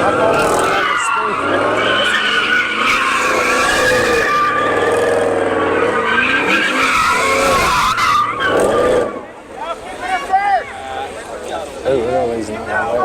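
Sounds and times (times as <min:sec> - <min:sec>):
car engine revving hard: 0:00.0 - 0:09.3
tires squealing: 0:00.0 - 0:10.8.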